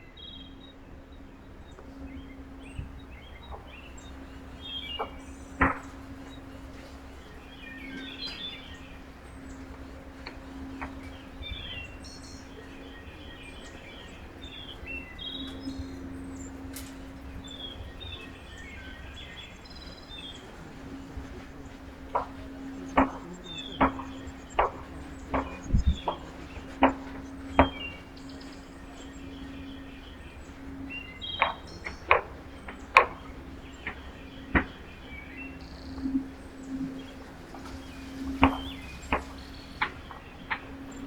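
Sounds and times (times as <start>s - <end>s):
bird chirps: 0.0s - 41.0s
steady low hum: 0.0s - 41.0s
sharp irregular knocks: 21.0s - 28.0s.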